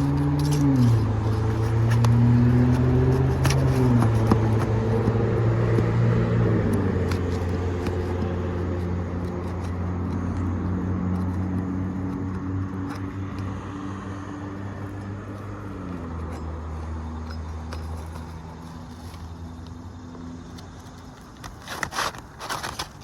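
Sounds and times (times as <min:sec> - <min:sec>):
engine running: 0:00.0 - 0:21.5.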